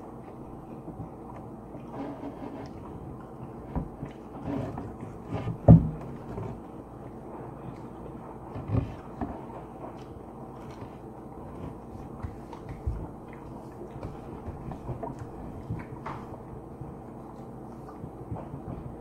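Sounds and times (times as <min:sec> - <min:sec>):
low background hum: 0:00.0 - 0:19.0
people biting and chewing: 0:00.0 - 0:19.0
dull thumps: 0:03.7 - 0:06.6.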